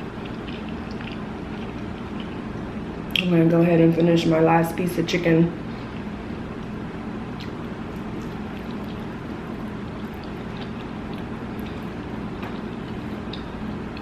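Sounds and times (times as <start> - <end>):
person chewing: 0.0 - 2.7, 7.4 - 14.0.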